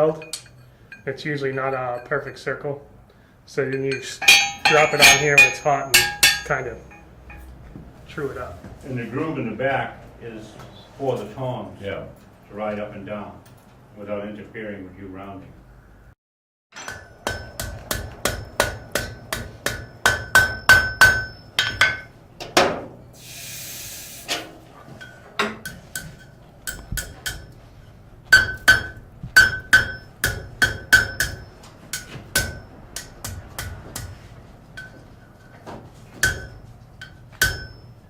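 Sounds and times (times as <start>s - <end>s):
hammer striking steel on anvil: 3.7s - 7.5s, 16.8s - 22.1s, 25.0s - 27.6s, 28.3s - 34.2s, 36.2s - 38.0s
short hiss: 23.2s - 24.4s.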